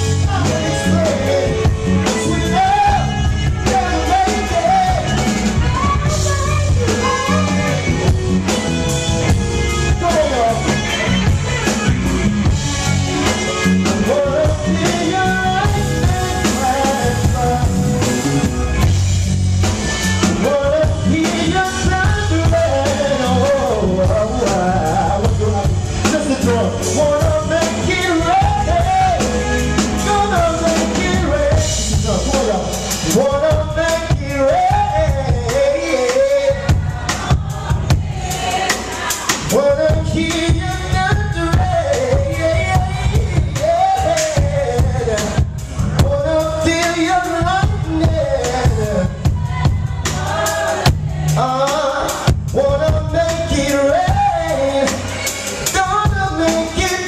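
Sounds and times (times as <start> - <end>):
man singing: 0.0 - 11.8, 13.1 - 18.9, 19.9 - 57.0
band playing drums and bass: 0.0 - 57.0.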